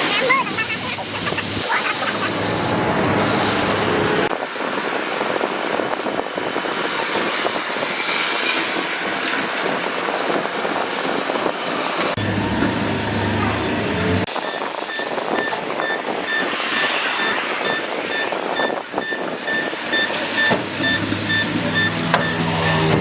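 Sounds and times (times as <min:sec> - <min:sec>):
diesel engine drone: 0:00.1 - 0:05.8, 0:11.8 - 0:23.0
machinery clattering and rattling: 0:12.0 - 0:23.0.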